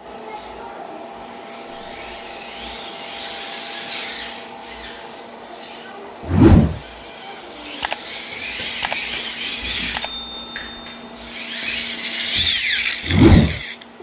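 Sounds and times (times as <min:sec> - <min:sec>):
small electric motor whirring: 0:11.3 - 0:13.9.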